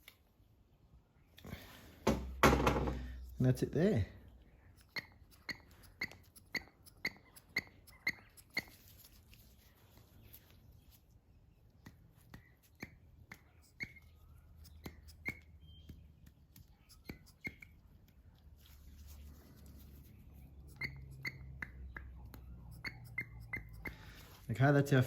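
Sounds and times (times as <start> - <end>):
small squeaky clicks: 4.6 - 9.3, 11.7 - 18.5, 20.2 - 24.2.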